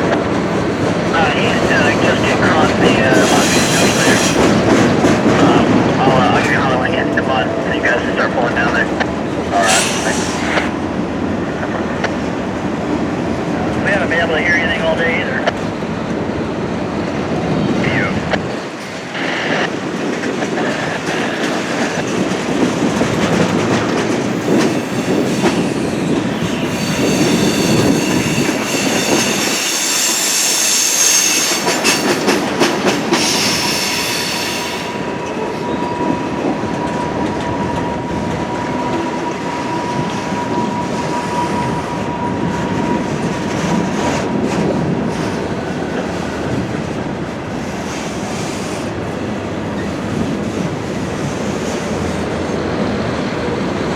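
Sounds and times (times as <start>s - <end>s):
train wheels clacking over tracks: 0.0s - 53.9s
high wheel squeal: 3.1s - 4.5s, 9.6s - 10.6s, 24.4s - 32.2s, 33.2s - 43.0s.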